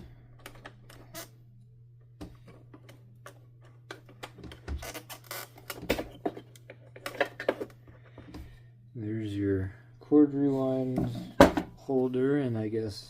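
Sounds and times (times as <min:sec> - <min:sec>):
plastic parts clicking and clattering: 0:02.5 - 0:08.0.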